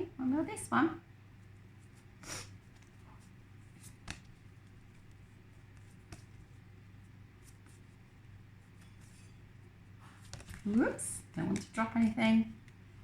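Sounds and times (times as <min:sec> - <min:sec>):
low steady hum: 0:00.0 - 0:13.0
paper flashcards shuffled: 0:10.0 - 0:12.1.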